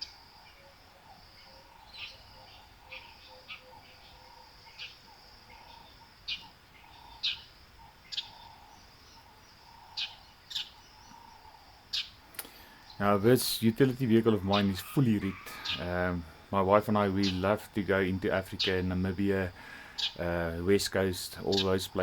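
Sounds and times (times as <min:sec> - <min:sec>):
faint steady hiss: 0:00.0 - 0:22.0
high bird chirps: 0:05.6 - 0:11.3, 0:19.9 - 0:20.2.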